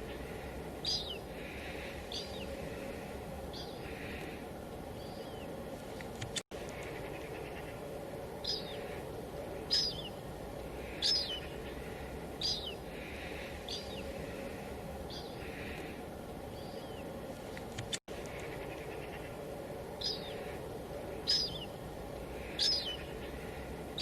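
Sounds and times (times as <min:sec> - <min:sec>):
steady white noise: 0:00.0 - 0:24.0.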